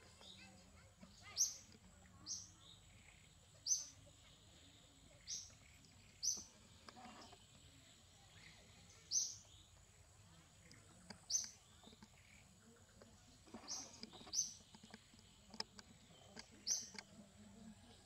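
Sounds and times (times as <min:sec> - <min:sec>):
bird chirping: 0:00.0 - 0:18.0
faint outdoor background: 0:00.0 - 0:18.0
soft clicks: 0:13.0 - 0:17.2.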